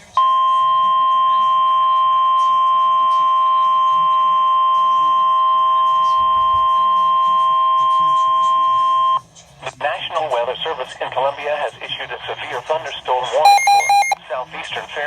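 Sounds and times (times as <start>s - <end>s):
high-pitched alarm tone: 13.5s - 14.2s.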